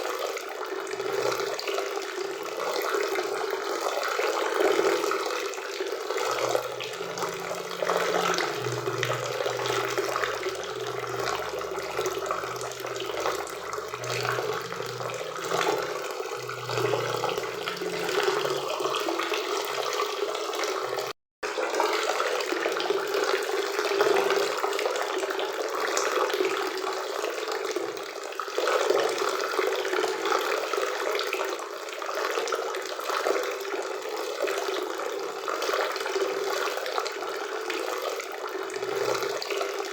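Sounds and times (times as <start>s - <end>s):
faint low hum: 6.2s - 19.9s.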